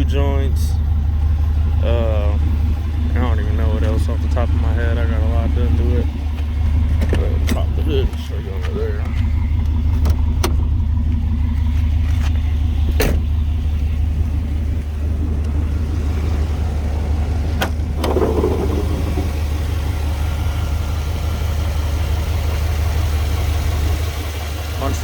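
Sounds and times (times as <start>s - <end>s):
car engine idling: 0.0s - 25.0s
car hood clicks and clunks: 9.9s - 10.7s, 12.9s - 13.3s.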